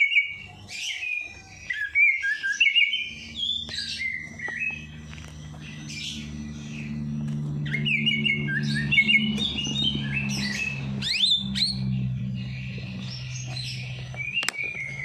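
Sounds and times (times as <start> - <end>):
songbirds chirping: 0.0 - 15.0
steady low hum: 0.0 - 15.0.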